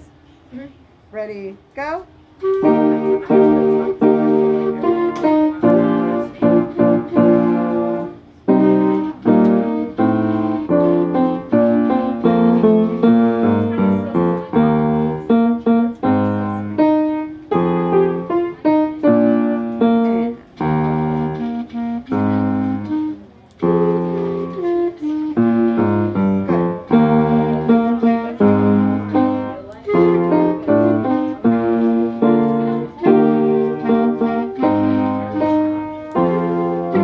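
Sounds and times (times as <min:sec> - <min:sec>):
piano-like notes: 0:02.4 - 0:37.0
concert band playing: 0:19.1 - 0:37.0.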